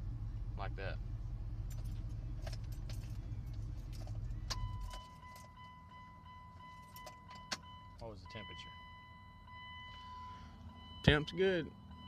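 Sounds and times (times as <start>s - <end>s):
pickup engine idling: 0.0s - 12.0s
steady warning tone: 4.5s - 12.0s.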